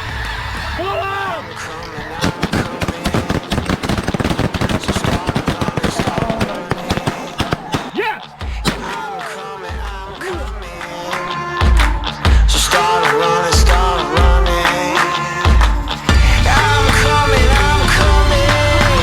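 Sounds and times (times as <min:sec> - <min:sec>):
geese honking: 0:00.0 - 0:19.0
rock music: 0:00.0 - 0:19.0
shotguns firing: 0:01.7 - 0:11.3.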